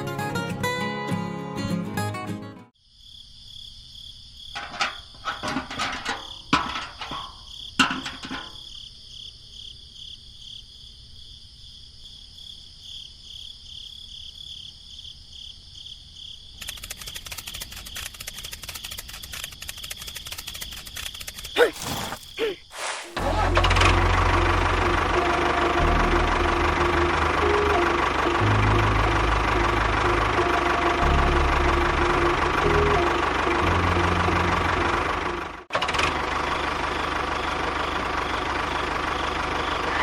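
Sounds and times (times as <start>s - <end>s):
insects chirring: 2.8s - 23.6s
sharp knocks and scrapes: 4.6s - 8.6s.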